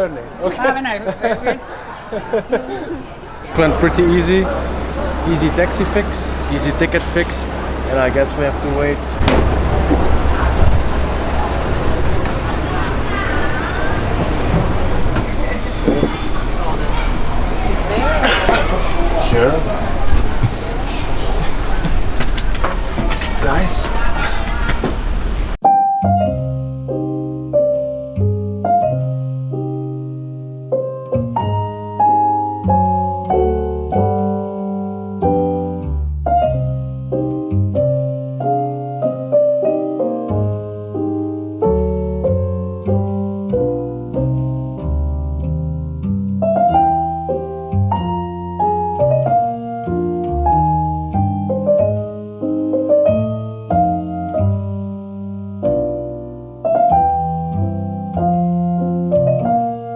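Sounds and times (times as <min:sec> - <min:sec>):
piano music: 0:01.4 - 0:59.9.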